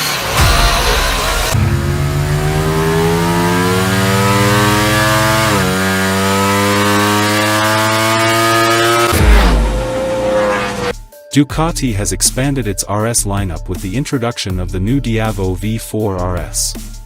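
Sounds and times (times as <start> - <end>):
motorcycle engine accelerating hard: 0.3 - 10.9.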